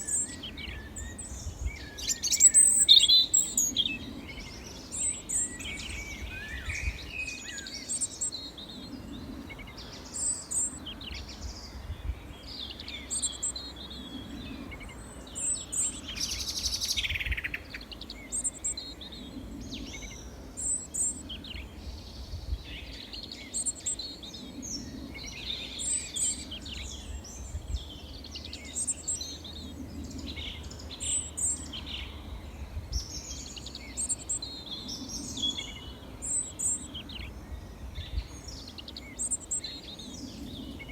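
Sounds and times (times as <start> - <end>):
buzzy bird trill: 0.0 - 3.9, 14.8 - 18.9, 20.6 - 21.2, 23.5 - 24.0, 28.6 - 29.4, 31.0 - 31.8, 33.5 - 37.3, 38.7 - 39.8
songbirds chirping: 0.0 - 40.9.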